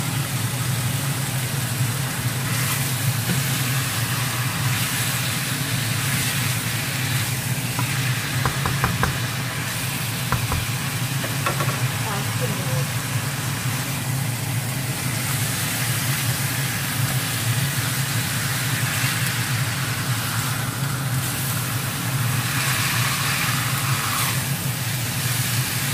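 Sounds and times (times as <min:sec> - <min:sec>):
chicken sizzling in a wok: 0:00.0 - 0:25.9
wooden spatula clicking on pan: 0:07.8 - 0:09.4, 0:10.3 - 0:11.8.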